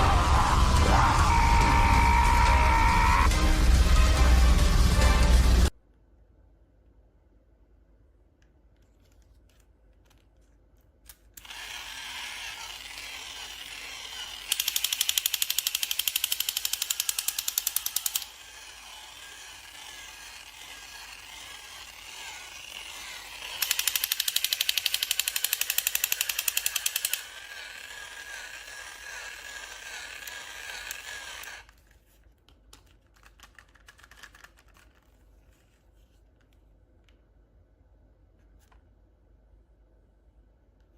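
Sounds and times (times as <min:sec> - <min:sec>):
small mechanism clicking rapidly: 0:11.4 - 0:31.7.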